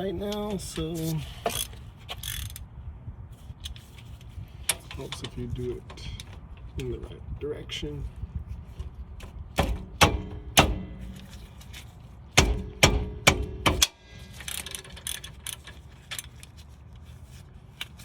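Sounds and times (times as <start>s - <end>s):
metal tools clanking on bolts: 4.7s - 7.2s.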